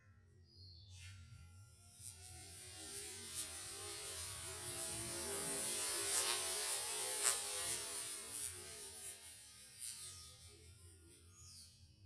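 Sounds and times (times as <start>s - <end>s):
firework powder hissing: 2.4s - 9.7s.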